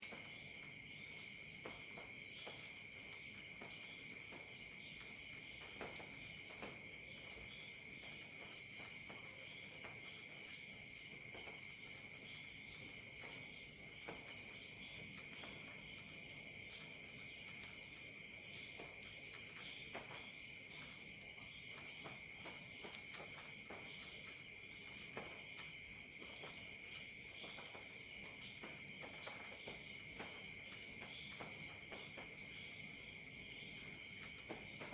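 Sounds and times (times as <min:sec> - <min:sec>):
crickets chirping: 0:00.1 - 0:34.9.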